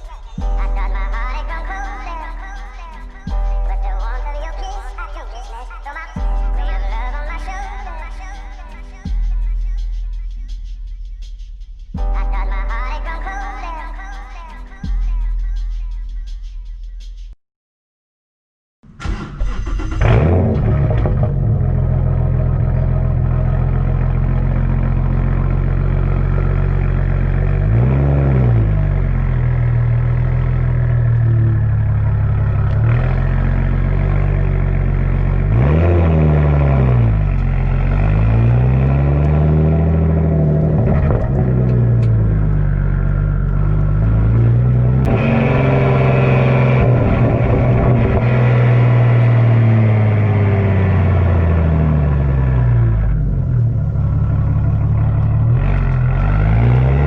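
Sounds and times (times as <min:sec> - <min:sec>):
car engine revving: 0:18.9 - 0:57.0.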